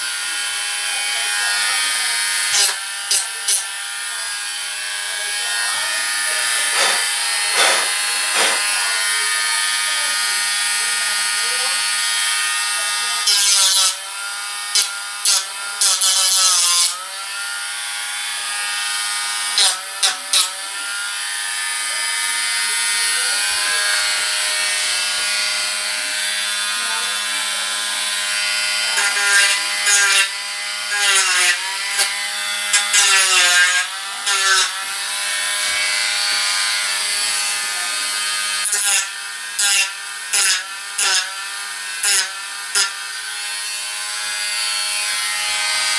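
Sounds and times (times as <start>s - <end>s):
rotary tool whine: 5.4s - 9.2s
sanding wheel scratching: 5.7s - 9.0s.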